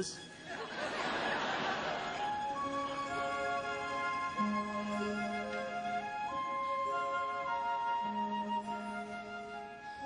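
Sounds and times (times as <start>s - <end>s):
slow orchestral music: 0.0s - 10.0s
flute playing long notes: 2.2s - 10.0s.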